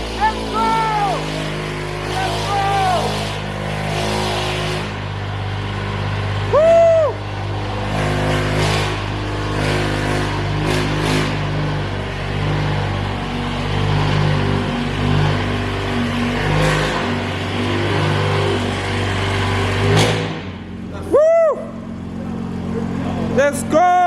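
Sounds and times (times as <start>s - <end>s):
engine throttle blips: 0.0s - 24.0s
sports car engine idling: 4.9s - 24.0s
rising and falling whoop: 6.5s - 7.3s, 21.0s - 21.9s.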